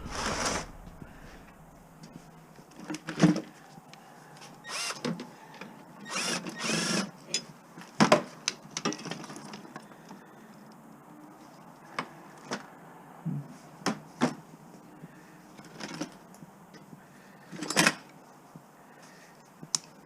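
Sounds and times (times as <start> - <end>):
metal scraping and rustling: 0.0 - 3.6.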